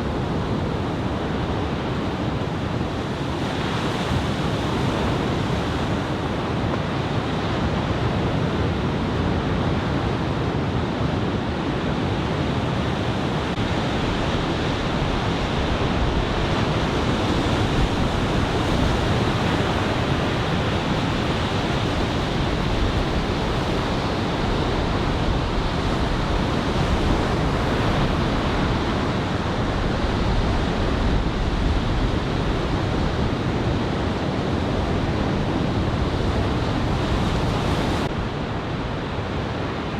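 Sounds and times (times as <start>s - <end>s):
wind on microphone: 0.0s - 39.9s
ocean surf breaking: 13.0s - 39.9s.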